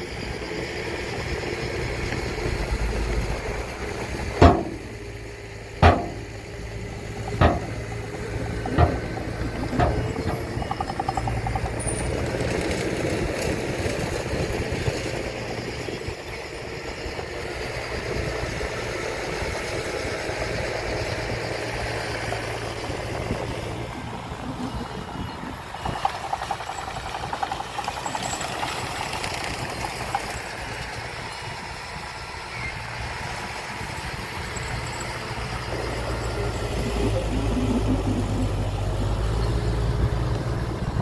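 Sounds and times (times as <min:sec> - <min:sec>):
diesel engine running: 0:00.0 - 0:41.0
sharp bangs: 0:04.4 - 0:05.0, 0:05.8 - 0:10.6.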